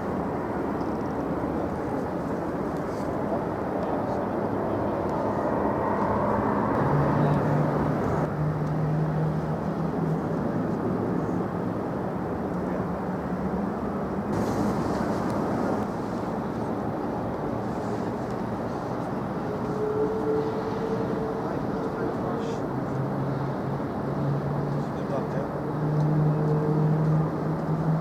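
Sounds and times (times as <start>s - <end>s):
jet engines rumbling: 1.8s - 8.3s.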